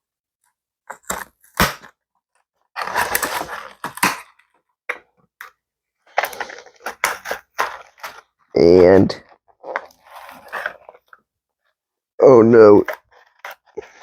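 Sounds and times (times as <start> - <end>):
cardboard and plastic snapping: 0.9 - 2.0, 2.8 - 5.0, 6.1 - 8.3
packaging rustling: 2.8 - 4.6, 6.1 - 8.4.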